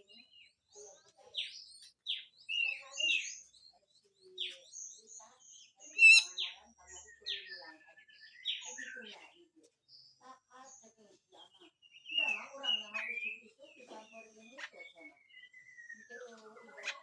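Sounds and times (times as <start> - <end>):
faint high chirps: 5.9 - 6.5
bird giving harsh calls: 6.0 - 6.4.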